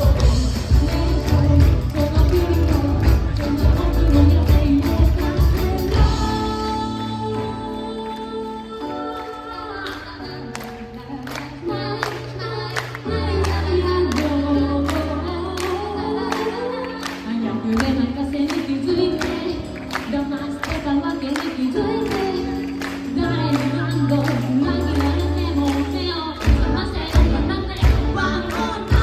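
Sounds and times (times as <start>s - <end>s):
drums hitting: 0.0s - 6.6s
band playing a song: 0.0s - 9.4s, 12.8s - 29.0s
person singing: 0.0s - 29.0s.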